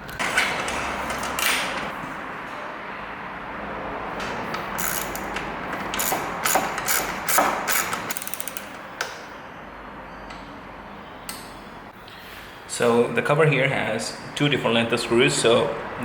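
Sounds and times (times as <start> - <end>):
socket ratchet clicking: 4.6 - 9.2.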